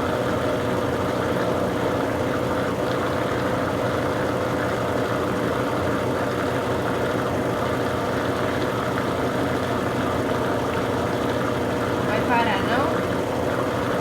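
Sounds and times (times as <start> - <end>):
washing machine spinning: 0.0 - 14.0.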